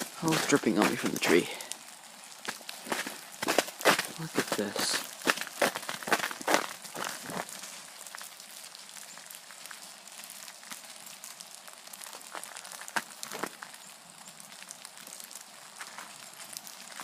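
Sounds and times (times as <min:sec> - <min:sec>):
footsteps crunching on ice: 0:00.0 - 0:09.4, 0:12.0 - 0:13.8, 0:15.7 - 0:17.0
meltwater and ice dripping: 0:00.0 - 0:17.0.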